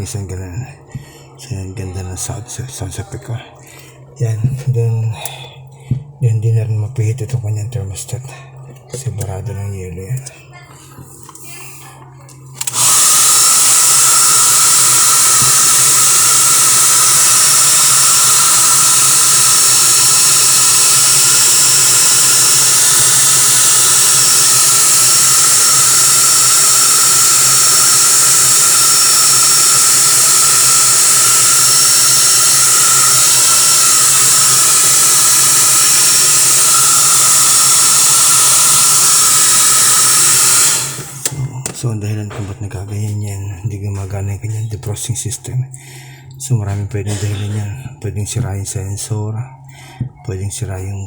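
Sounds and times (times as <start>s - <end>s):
electric blower running: 11.0s - 42.6s, 46.6s - 47.7s.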